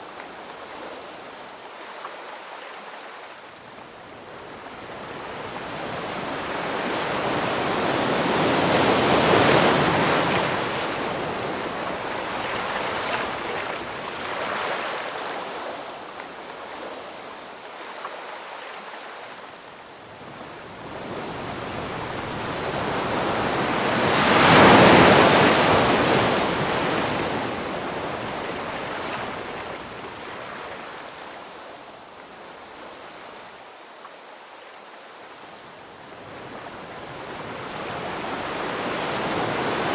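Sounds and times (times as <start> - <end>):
ocean waves crashing: 4.7 - 19.4, 20.2 - 31.5, 36.2 - 39.9.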